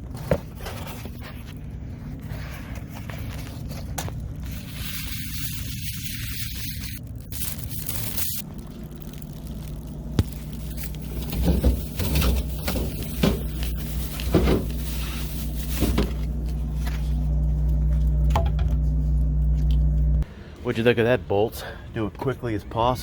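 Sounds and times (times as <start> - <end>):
steady low hum: 0.0 - 23.0
objects knocking and rustling: 10.2 - 18.9.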